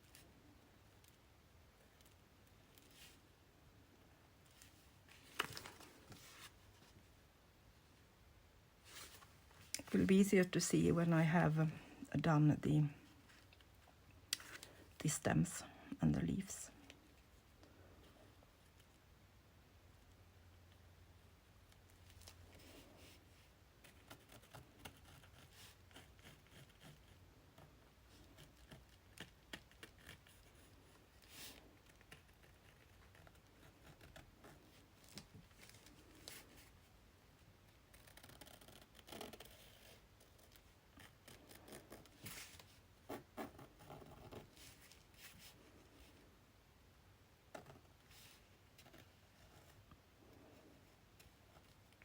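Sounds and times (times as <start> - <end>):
paper rustling: 4.6 - 6.6.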